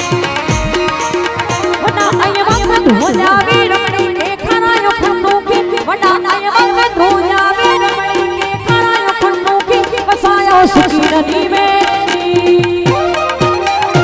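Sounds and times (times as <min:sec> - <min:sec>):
folk dance melody with gliding notes: 0:00.0 - 0:03.8
fast hand drum strokes: 0:00.0 - 0:04.3.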